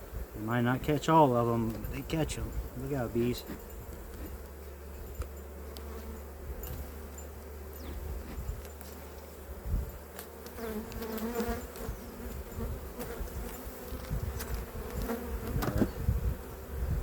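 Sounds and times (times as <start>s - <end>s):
bee passing close: 0.0s - 17.0s
bees buzzing: 0.0s - 17.0s.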